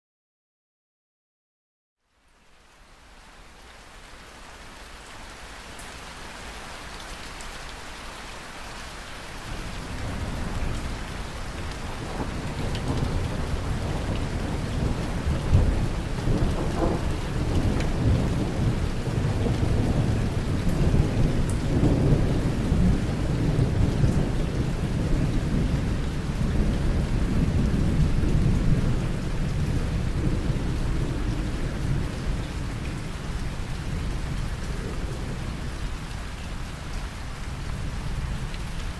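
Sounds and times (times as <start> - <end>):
steady rain: 2.0 - 38.9
rolling thunder: 9.6 - 32.8.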